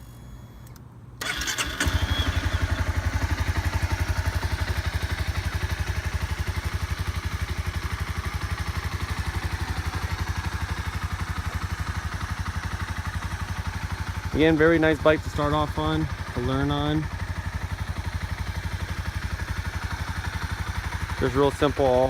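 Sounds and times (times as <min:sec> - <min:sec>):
electric starter cranking: 0:01.2 - 0:03.0
motorcycle engine idling: 0:01.2 - 0:22.0.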